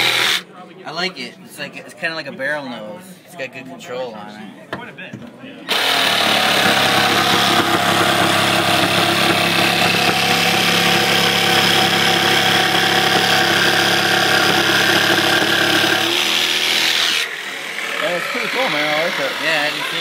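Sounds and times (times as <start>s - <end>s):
jigsaw cutting through countertop: 0.0s - 0.4s, 5.7s - 20.0s.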